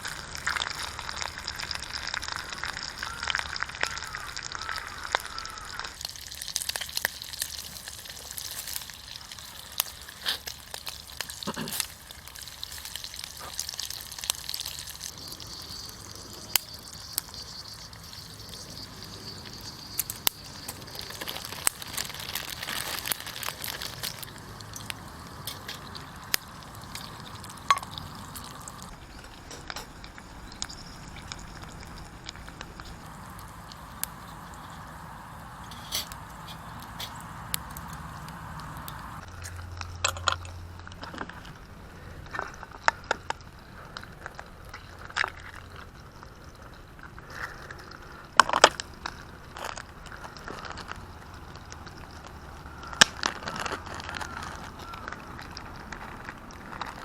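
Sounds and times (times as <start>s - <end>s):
food sizzling in a pan: 0.0s - 39.3s
fire crackling: 0.0s - 57.0s.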